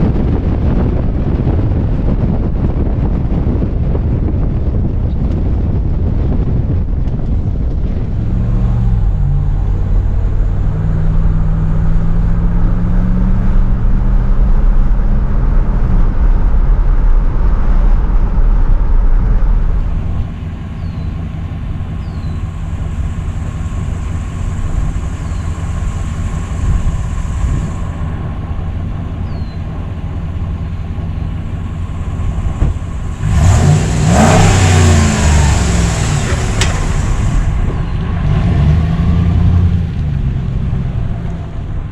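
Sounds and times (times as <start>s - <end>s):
engine pulling: 6.4s - 41.9s
loud rush of noise: 22.4s - 41.9s.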